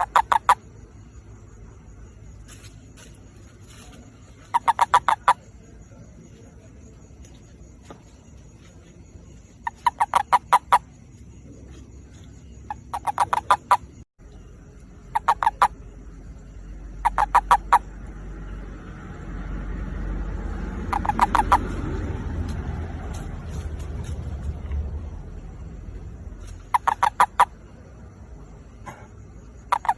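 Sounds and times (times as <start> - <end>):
toad croaking: 0.0 - 1.0, 4.3 - 5.6, 9.5 - 14.0, 14.6 - 18.6, 20.1 - 22.1, 26.4 - 29.9
low rumble: 17.8 - 26.7.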